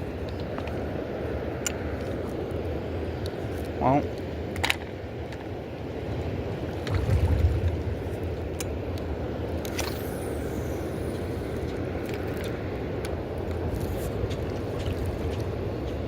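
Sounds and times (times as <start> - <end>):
wind buffeting microphone: 6.4 - 16.0
river water rushing: 6.7 - 8.6.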